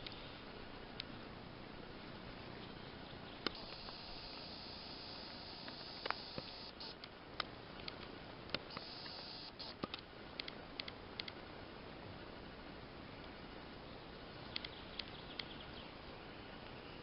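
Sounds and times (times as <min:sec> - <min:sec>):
steady forest hiss: 0:00.0 - 0:17.0
faint irregular clicks and snaps: 0:05.3 - 0:11.4, 0:14.5 - 0:15.6.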